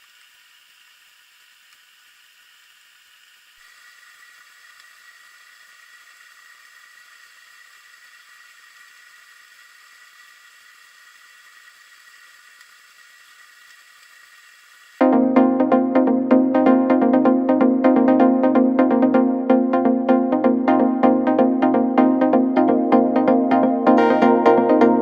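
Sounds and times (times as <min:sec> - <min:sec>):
steady hiss with high whine: 0:00.0 - 0:15.0
electronic dance music: 0:15.0 - 0:25.0.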